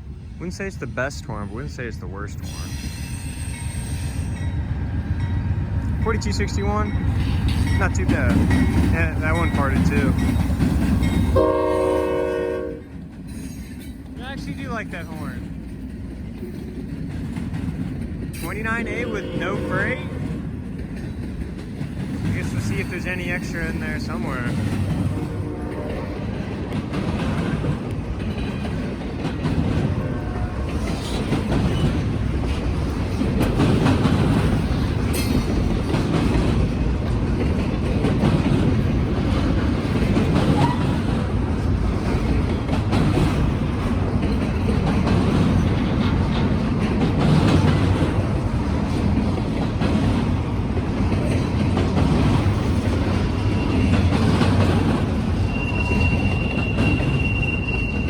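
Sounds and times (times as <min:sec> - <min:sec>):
high wheel squeal: 0:02.4 - 0:04.6, 0:53.3 - 0:54.2, 0:55.3 - 0:58.0
train wheels clattering over rail joints: 0:06.7 - 0:11.6, 0:12.9 - 0:18.8, 0:20.2 - 0:58.0.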